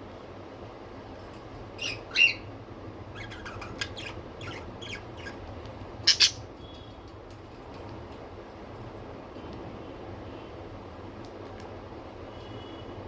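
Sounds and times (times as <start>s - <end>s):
budgerigars chirping and squawking: 1.8s - 2.5s, 3.1s - 6.4s.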